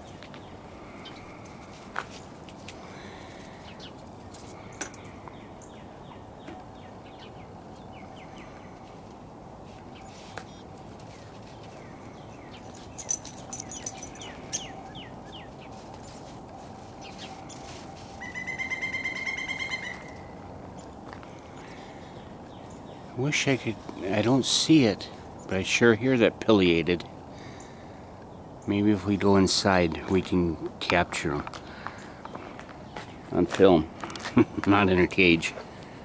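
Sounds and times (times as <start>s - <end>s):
small birds chirping: 0.0s - 9.0s, 9.8s - 16.3s, 16.9s - 18.4s, 19.8s - 25.6s, 31.6s - 33.8s
woodpecker calling: 18.2s - 23.0s.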